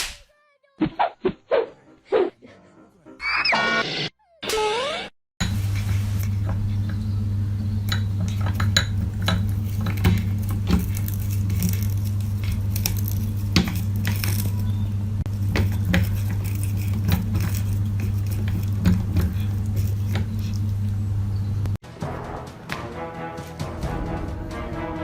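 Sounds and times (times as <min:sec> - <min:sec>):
low hum: 0:05.4 - 0:21.8.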